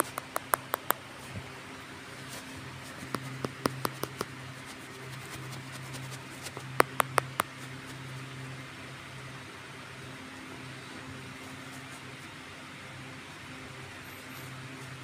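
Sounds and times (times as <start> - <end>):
sharp clicks: 0.0 - 1.0, 3.2 - 4.3, 6.8 - 7.5.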